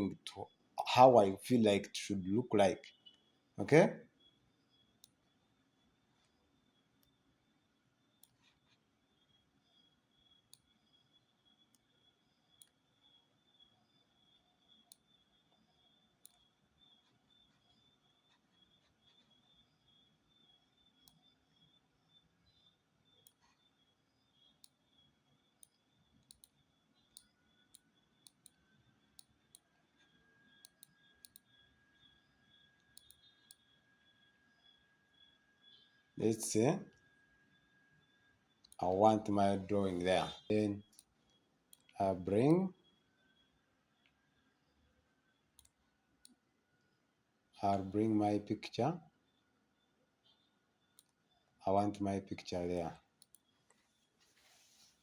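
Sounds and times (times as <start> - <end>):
computer mouse clicking: 8.2 - 8.9, 12.5 - 13.2, 14.7 - 19.6, 22.5 - 23.8, 25.6 - 31.7, 32.8 - 33.8, 40.8 - 42.0, 45.6 - 46.4, 50.3 - 51.2, 53.2 - 53.8
faint computer mouse clicks: 12.6 - 12.8, 16.2 - 16.4, 25.6 - 28.6, 29.2 - 31.5, 32.8 - 33.6, 45.6 - 46.4, 53.2 - 53.8.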